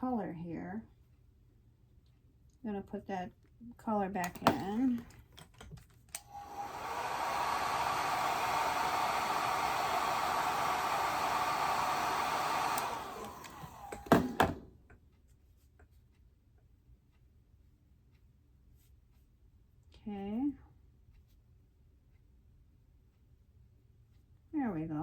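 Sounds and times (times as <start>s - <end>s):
hair dryer knocking down: 4.3s - 4.8s, 6.2s - 14.7s
hair dryer blowing: 6.2s - 14.7s.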